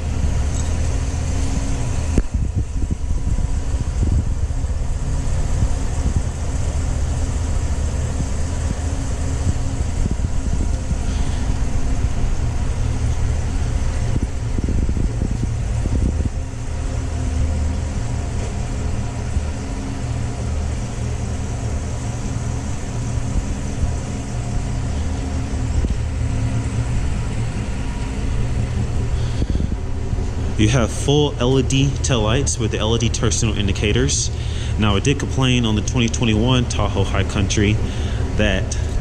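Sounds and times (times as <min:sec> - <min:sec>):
car engine idling: 0:00.0 - 0:39.0
faint whir: 0:00.0 - 0:39.0.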